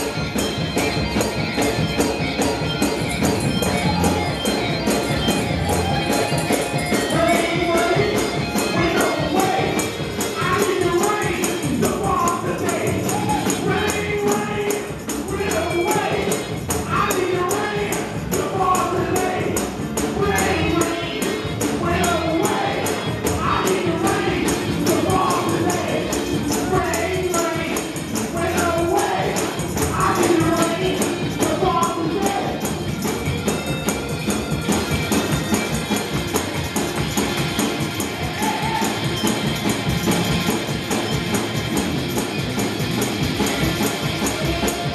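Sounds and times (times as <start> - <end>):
fast tambourine shake: 0.0 - 44.9
voices singing gospel: 6.9 - 32.6.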